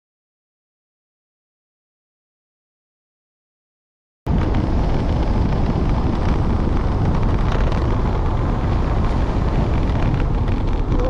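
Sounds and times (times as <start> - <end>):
motor scooter running: 4.3 - 11.0
wind buffeting microphone: 4.3 - 11.0.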